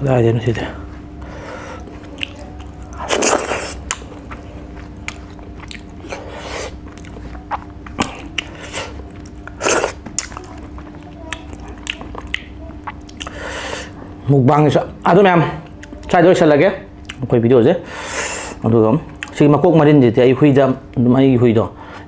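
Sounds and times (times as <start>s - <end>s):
person chewing food: 1.1s - 14.2s, 15.6s - 16.2s, 17.0s - 17.2s, 19.1s - 19.4s
wet mouth clicks: 11.3s - 13.4s.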